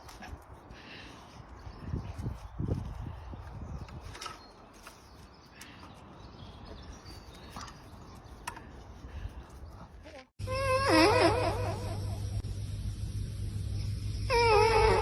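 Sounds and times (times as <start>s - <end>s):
dog howling whine: 10.4s - 12.1s, 14.3s - 15.0s.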